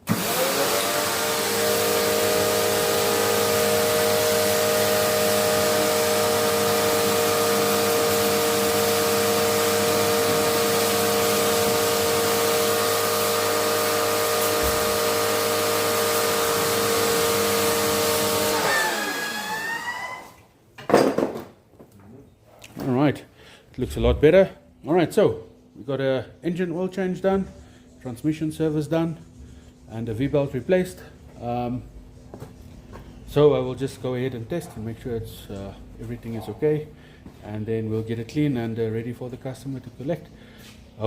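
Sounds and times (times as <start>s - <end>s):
cleaning machine motor hissing: 0.0s - 20.3s.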